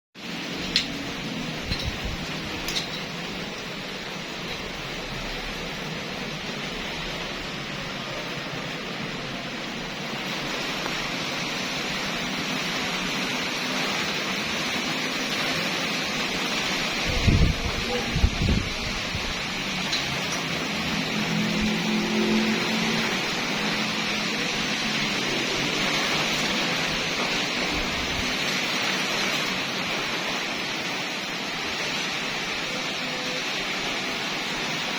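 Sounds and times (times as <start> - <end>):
strong wind blowing: 17.0 - 19.6.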